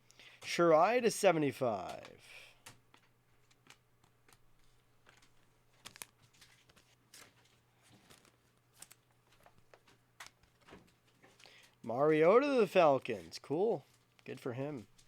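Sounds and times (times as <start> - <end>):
cards and wrappers crinkling: 1.9 - 15.0.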